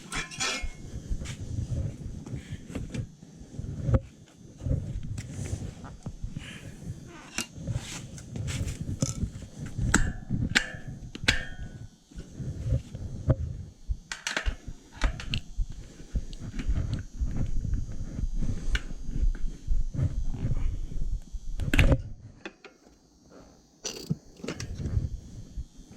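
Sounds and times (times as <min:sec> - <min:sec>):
metal tools on wheel rim: 0:00.0 - 0:00.8.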